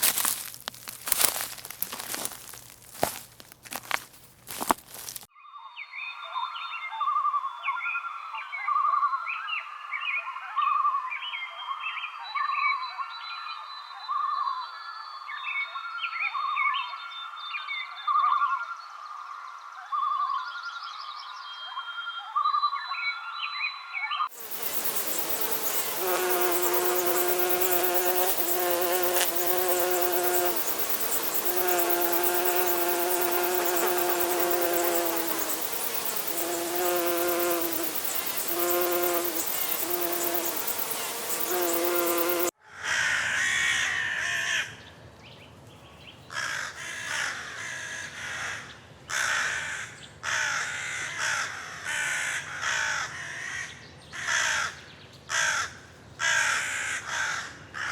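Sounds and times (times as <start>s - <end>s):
insects buzzing and hissing: 0.0s - 5.3s, 24.3s - 42.6s
harsh caw-like bird calls: 42.6s - 44.8s, 46.3s - 57.9s.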